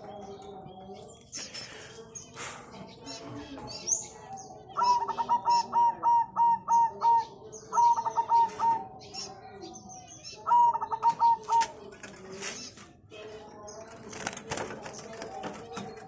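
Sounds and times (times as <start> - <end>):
dove cooing: 4.7 - 8.9, 10.5 - 12.2.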